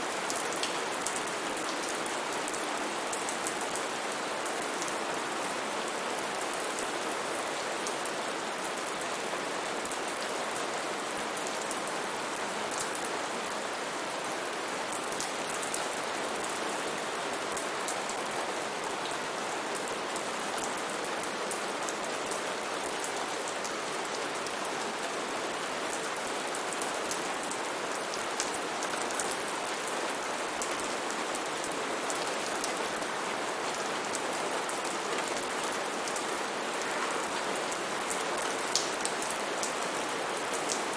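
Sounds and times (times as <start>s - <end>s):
raindrops ticking on surfaces: 0.0s - 5.3s, 14.9s - 40.9s.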